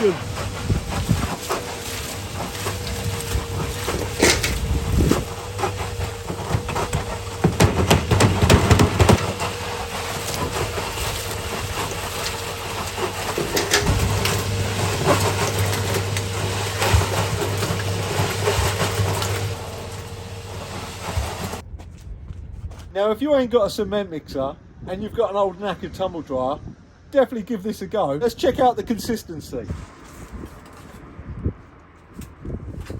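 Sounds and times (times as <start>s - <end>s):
dryer motor humming: 0.0s - 21.6s
cement knocking in drum: 6.3s - 9.7s.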